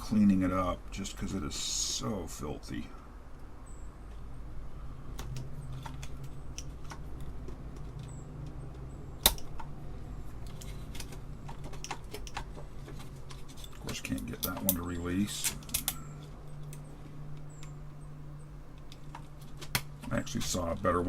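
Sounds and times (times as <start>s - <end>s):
clicks and taps handling keyboard: 10.5s - 16.0s.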